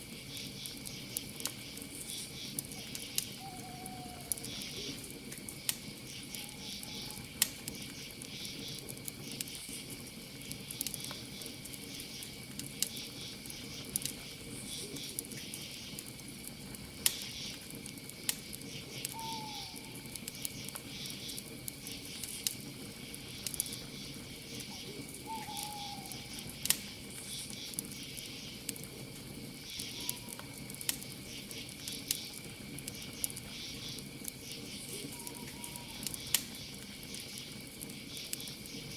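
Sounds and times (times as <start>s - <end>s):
campfire crackling and popping: 0.0s - 38.9s
crickets chirring: 0.0s - 38.9s
night bird calling: 0.3s - 5.0s, 6.1s - 9.4s, 18.7s - 22.2s, 23.1s - 26.6s, 29.7s - 30.5s, 33.0s - 37.3s.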